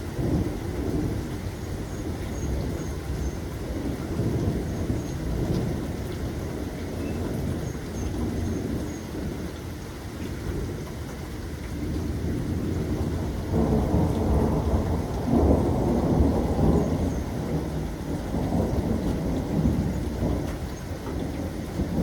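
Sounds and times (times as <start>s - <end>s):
steady rain: 0.0s - 22.0s
thunder rumbling: 11.7s - 22.0s.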